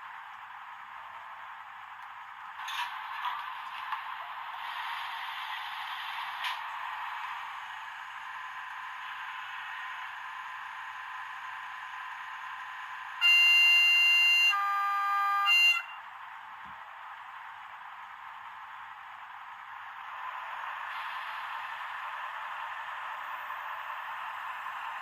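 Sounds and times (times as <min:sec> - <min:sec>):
two-tone horn: 0:13.2 - 0:16.0.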